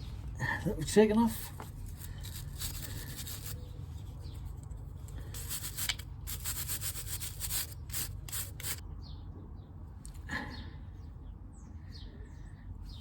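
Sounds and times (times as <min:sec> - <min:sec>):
brush scrubbing metal: 0:00.9 - 0:08.8.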